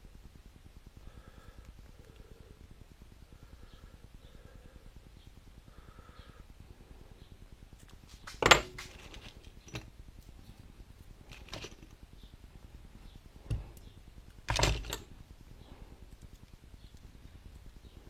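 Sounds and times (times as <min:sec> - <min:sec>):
metal parts clanking: 0:08.3 - 0:09.9, 0:11.3 - 0:11.9, 0:14.5 - 0:15.1.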